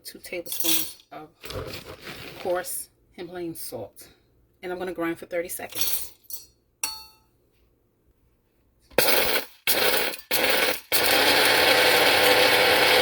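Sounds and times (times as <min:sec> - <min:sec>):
coffee grinder grinding salt: 0:09.0 - 0:13.0.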